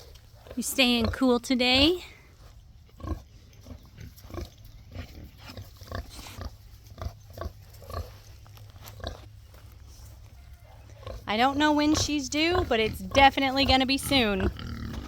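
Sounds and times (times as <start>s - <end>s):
pig grunting: 10.9s - 15.0s.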